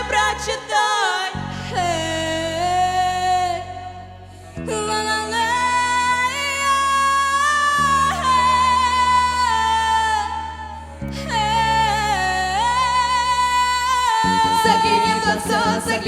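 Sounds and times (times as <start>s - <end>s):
pop backing chords: 0.0s - 16.0s
woman singing wordless notes: 4.6s - 16.0s.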